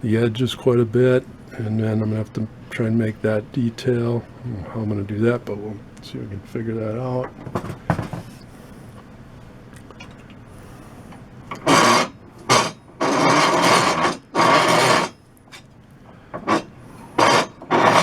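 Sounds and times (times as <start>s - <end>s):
hand file rasping wood: 11.5s - 15.2s, 16.4s - 18.0s.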